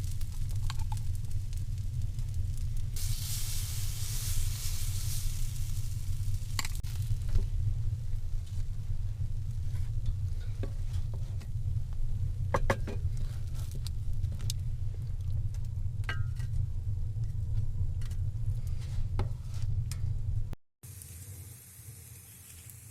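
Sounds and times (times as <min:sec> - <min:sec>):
pancakes frying in a pan: 0:00.0 - 0:11.2, 0:20.9 - 0:22.9
low rumble: 0:00.0 - 0:20.6.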